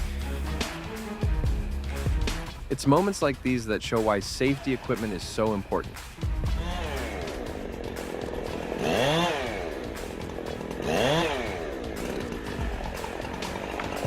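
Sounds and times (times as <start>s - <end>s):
chainsaw engine revving: 6.3s - 14.0s.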